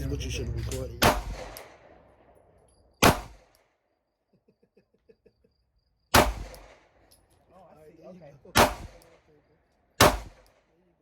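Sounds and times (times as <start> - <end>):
handgun shot: 1.0 - 1.8, 3.0 - 3.7, 6.1 - 6.9, 8.6 - 9.2, 10.0 - 10.6.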